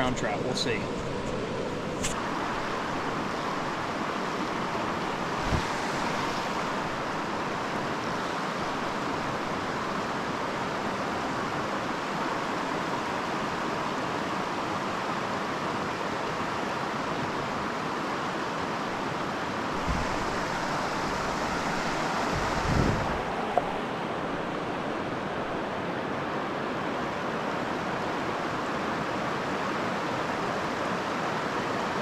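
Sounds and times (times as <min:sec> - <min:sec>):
water rushing over rocks: 0:00.0 - 0:13.8, 0:19.4 - 0:27.1.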